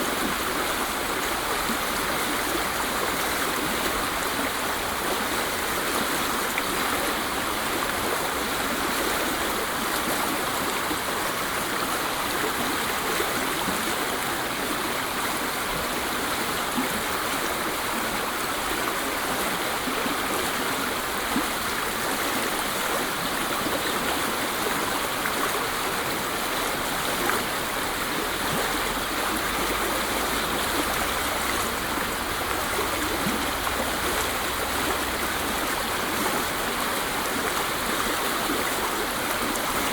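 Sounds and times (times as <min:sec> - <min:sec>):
waterfall rushing: 0:24.4 - 0:39.9.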